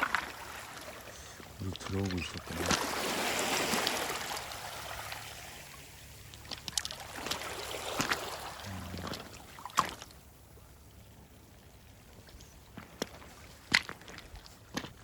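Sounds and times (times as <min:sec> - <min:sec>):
water washing over pebbles: 0:00.0 - 0:10.3
stones clicking together: 0:06.3 - 0:07.0.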